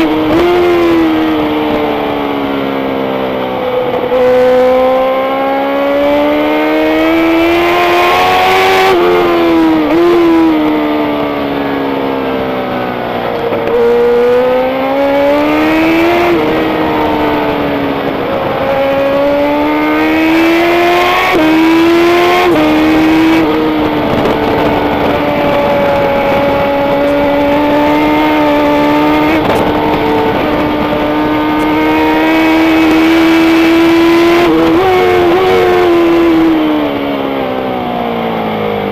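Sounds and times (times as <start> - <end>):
racing motorcycle engine revving: 0.0 - 38.9.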